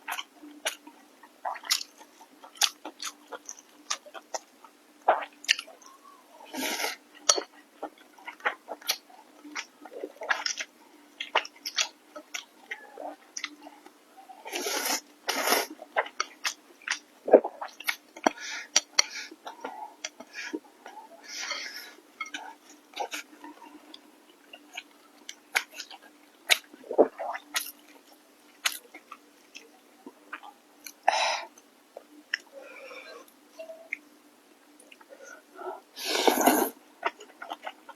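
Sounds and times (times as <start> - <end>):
person chewing food: 0.0 - 14.0, 14.6 - 34.0, 34.8 - 37.9
wet chewing and biting: 1.4 - 4.5, 24.5 - 29.7.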